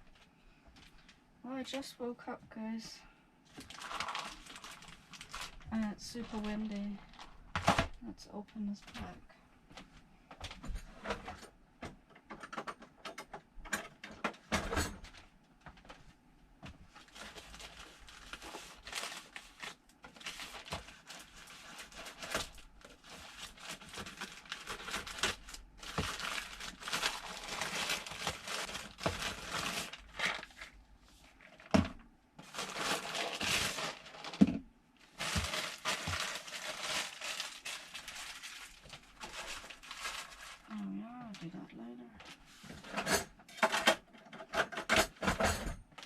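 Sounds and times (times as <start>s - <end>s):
packaging crinkling and tearing: 3.5s - 8.0s, 16.9s - 31.8s, 32.4s - 41.6s.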